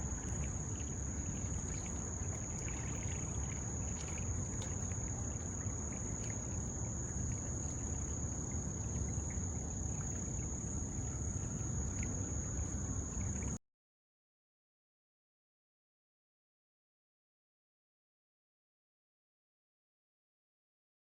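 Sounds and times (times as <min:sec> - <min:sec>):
insects singing high-pitched tone: 0:00.0 - 0:13.5.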